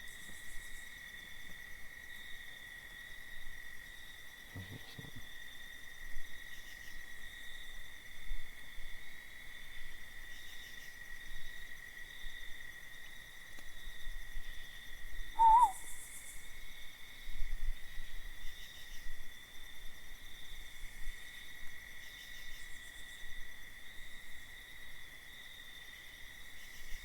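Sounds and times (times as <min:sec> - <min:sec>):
crickets trilling: 0:00.0 - 0:27.0
wavering insect call: 0:14.5 - 0:16.5.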